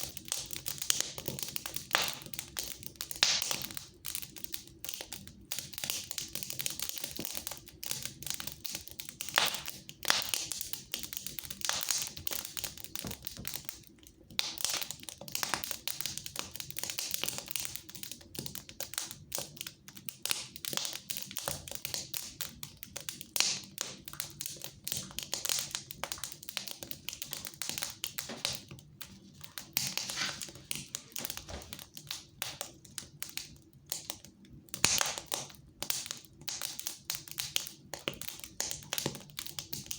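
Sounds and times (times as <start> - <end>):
fire crackling in fireplace: 0.0 - 39.9
soft hiss of fire: 20.0 - 39.9.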